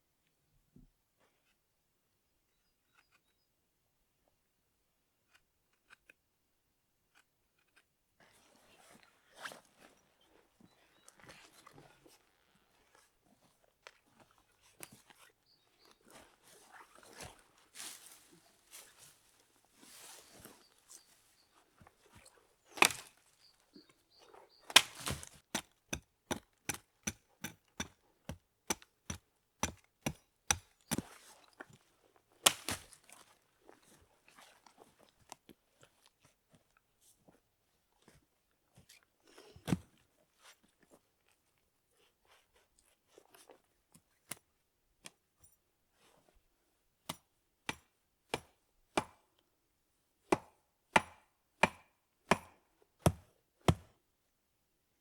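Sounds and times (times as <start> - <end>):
blade chopping knocks: 24.7 - 25.3.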